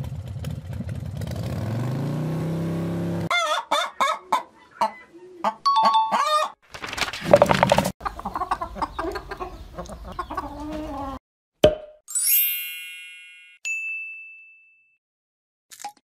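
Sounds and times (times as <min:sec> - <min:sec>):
hens clucking: 0:03.3 - 0:06.5, 0:07.3 - 0:11.2
high ding: 0:05.7 - 0:06.5, 0:12.1 - 0:15.0
shimmering chime: 0:12.1 - 0:13.6.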